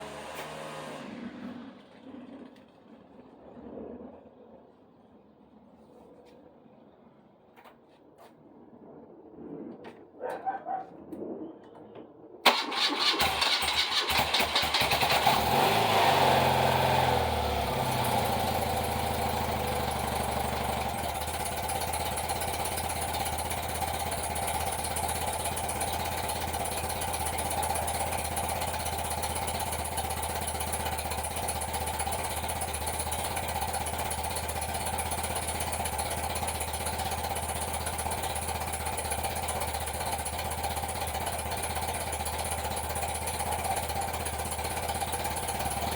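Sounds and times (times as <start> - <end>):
motorcycle starter: 12.4 - 15.7
motorcycle engine idling: 12.5 - 45.9.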